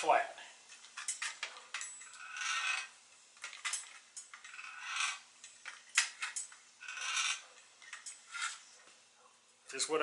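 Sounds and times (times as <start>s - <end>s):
metal clicks and rasping: 0.7s - 8.6s.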